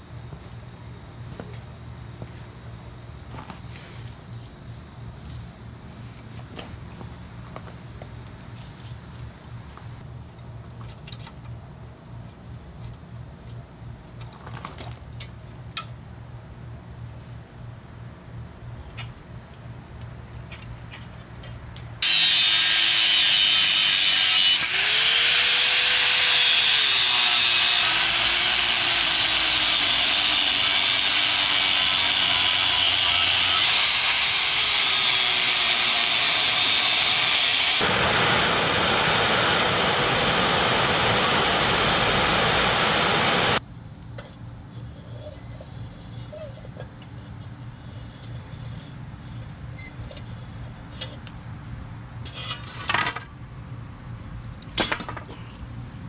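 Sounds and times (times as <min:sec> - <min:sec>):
power tool motor running: 0:22.0 - 0:43.6.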